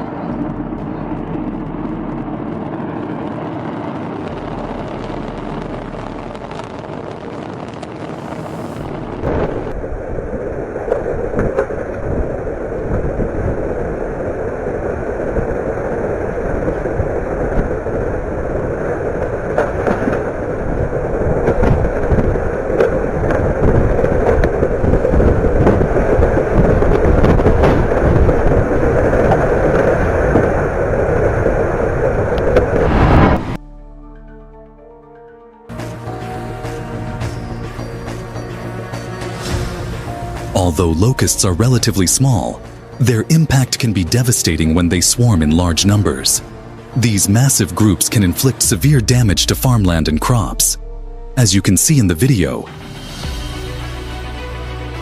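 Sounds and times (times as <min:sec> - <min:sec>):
steady rushing noise: 0:00.0 - 0:33.6, 0:35.7 - 0:54.6
storm wind on microphone: 0:00.0 - 0:33.6.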